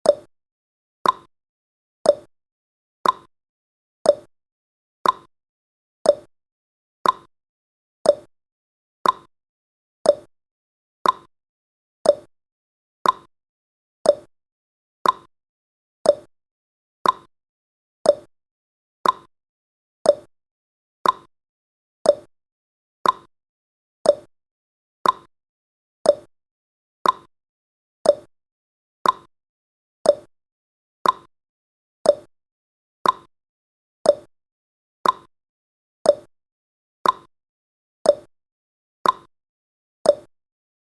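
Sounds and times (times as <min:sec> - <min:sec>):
clock-like timer ticking: 0:01.0 - 0:01.3, 0:02.1 - 0:02.3, 0:03.0 - 0:03.3, 0:04.1 - 0:04.3, 0:05.0 - 0:05.3, 0:06.1 - 0:06.3, 0:07.0 - 0:07.3, 0:08.1 - 0:08.3, 0:09.0 - 0:09.3, 0:10.0 - 0:10.3, 0:11.0 - 0:11.3, 0:12.0 - 0:12.3, 0:13.0 - 0:13.3, 0:14.0 - 0:14.3, 0:15.0 - 0:15.3, 0:16.0 - 0:16.3, 0:17.0 - 0:17.3, 0:18.0 - 0:18.3, 0:19.0 - 0:19.3, 0:20.0 - 0:20.3, 0:21.0 - 0:21.3, 0:22.0 - 0:22.3, 0:23.0 - 0:23.3, 0:24.0 - 0:24.3, 0:25.0 - 0:25.3, 0:26.0 - 0:26.3, 0:27.0 - 0:27.3, 0:28.0 - 0:28.3, 0:29.0 - 0:29.3, 0:30.0 - 0:30.3, 0:31.0 - 0:31.3, 0:32.0 - 0:32.3, 0:33.0 - 0:33.3, 0:34.0 - 0:34.3, 0:35.0 - 0:35.3, 0:36.0 - 0:36.3, 0:37.0 - 0:37.3, 0:38.1 - 0:38.3, 0:39.0 - 0:39.3, 0:40.1 - 0:40.3.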